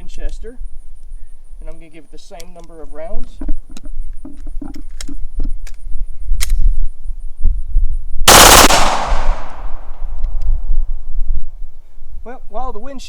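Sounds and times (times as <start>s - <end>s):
gun handling clicks: 2.4s - 6.7s
automatic gunfire burst: 8.3s - 9.8s.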